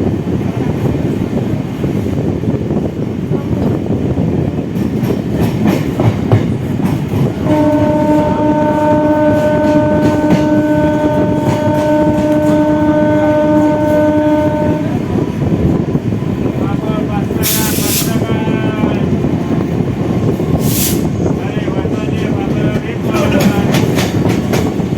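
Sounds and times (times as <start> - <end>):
train running at speed: 0.0 - 24.9
train horn blast: 7.4 - 15.8.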